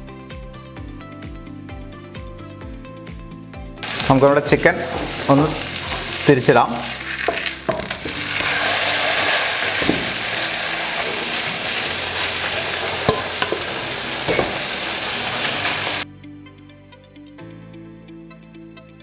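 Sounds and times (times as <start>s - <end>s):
quiet background music: 0.0s - 19.0s
chicken sizzling in frying pan: 3.8s - 16.0s.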